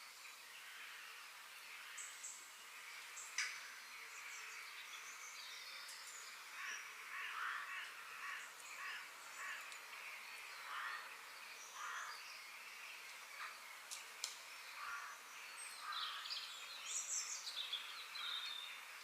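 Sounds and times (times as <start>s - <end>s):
birds chirping: 0.0s - 19.0s
harsh repeated bird calls: 6.5s - 12.2s.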